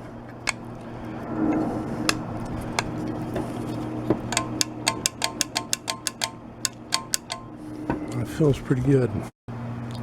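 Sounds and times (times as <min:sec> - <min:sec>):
low steady hum: 0:00.0 - 0:10.0
handle rubbing: 0:01.5 - 0:07.9.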